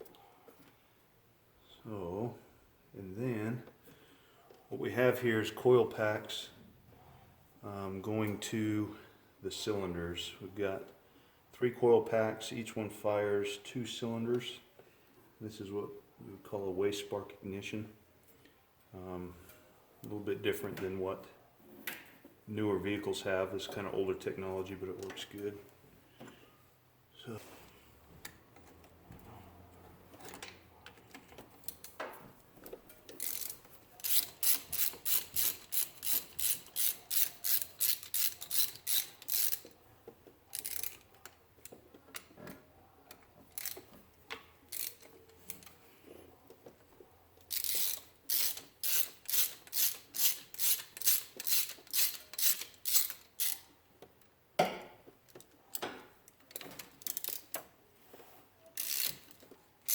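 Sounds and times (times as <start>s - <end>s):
ratchet wrench clicking: 33.1s - 39.8s, 40.5s - 41.3s, 43.5s - 43.9s, 44.7s - 45.7s, 47.5s - 53.7s, 56.5s - 57.6s, 58.8s - 59.9s.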